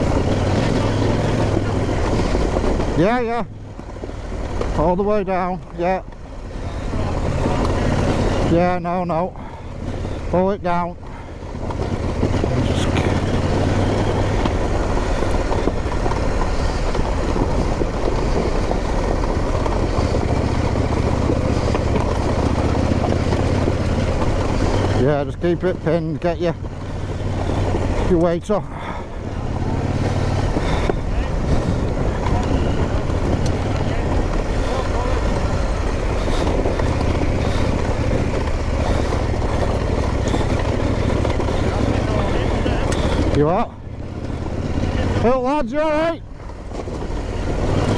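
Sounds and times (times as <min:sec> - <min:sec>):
motorcycle engine running: 0:00.0 - 0:47.9
noisy rush: 0:00.0 - 0:47.9
wind noise on microphone: 0:29.8 - 0:43.3.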